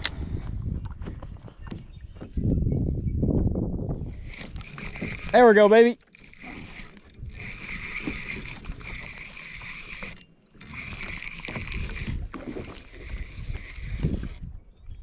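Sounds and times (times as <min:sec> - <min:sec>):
fishing reel whirring: 0:04.1 - 0:14.5.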